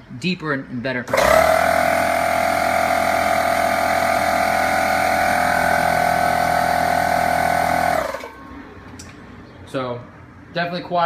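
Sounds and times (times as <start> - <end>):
air compressor running: 1.1 - 8.6.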